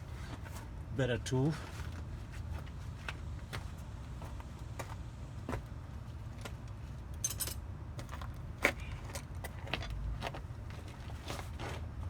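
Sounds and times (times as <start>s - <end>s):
metal tools clinking: 7.2s - 7.6s.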